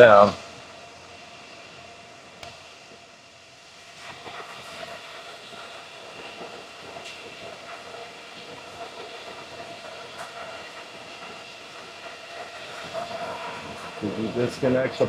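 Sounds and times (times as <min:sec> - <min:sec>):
cooling fans whirring: 0:05.4 - 0:15.0.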